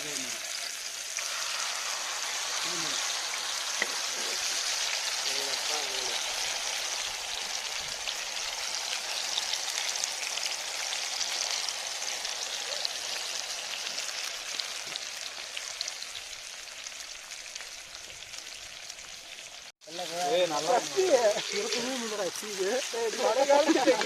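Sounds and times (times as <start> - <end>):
fish frying in hot oil: 0.0 - 24.0.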